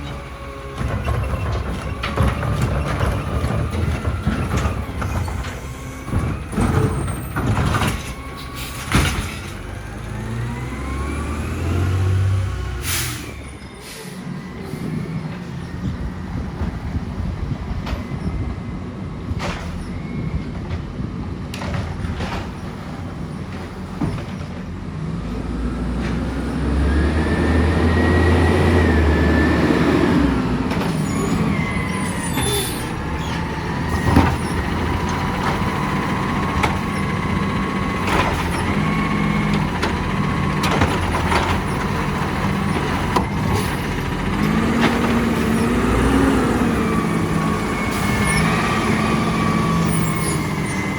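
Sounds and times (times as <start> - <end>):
diesel engine revving: 0.0 - 17.7, 24.7 - 50.9
knocks and clangs: 0.8 - 10.1.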